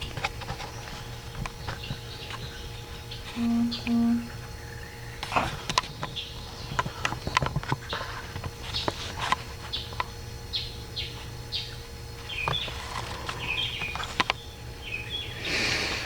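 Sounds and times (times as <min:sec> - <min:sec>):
bird chirps: 0:03.4 - 0:04.3.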